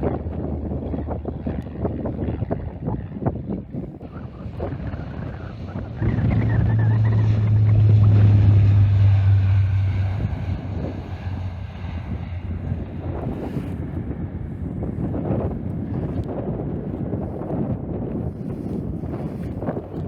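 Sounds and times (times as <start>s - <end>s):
distant jet engines whining: 0.0s - 15.6s
wind buffeting microphone: 0.0s - 20.0s.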